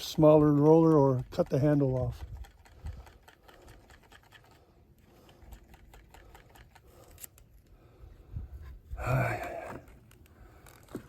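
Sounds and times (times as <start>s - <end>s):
paint roller scratching and clicking: 0.0s - 7.4s.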